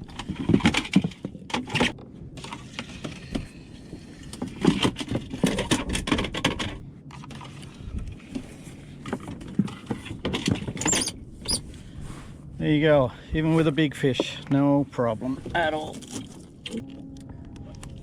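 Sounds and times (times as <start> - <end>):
fishing gear rattling on plastic kayak: 0.0 - 11.6, 15.5 - 17.0.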